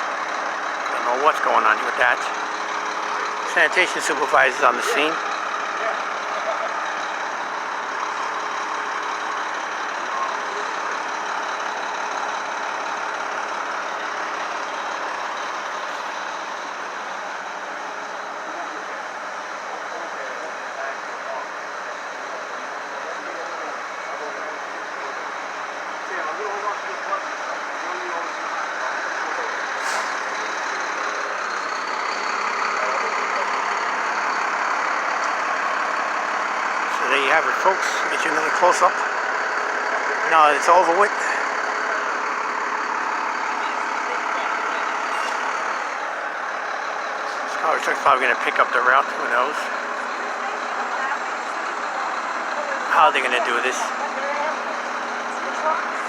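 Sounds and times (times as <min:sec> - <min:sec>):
street noise: 0:00.0 - 0:56.0
truck engine idling: 0:00.0 - 0:56.0.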